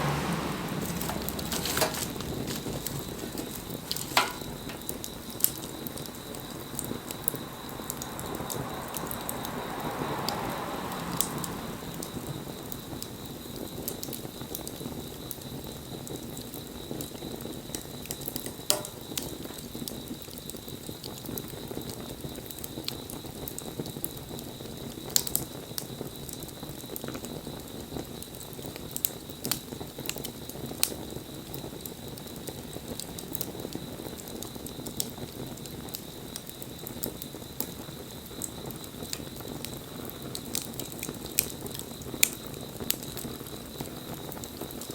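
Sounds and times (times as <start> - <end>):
sharp pops of fire: 0.0 - 9.5, 11.1 - 24.2
wood fire crackling: 0.0 - 44.9.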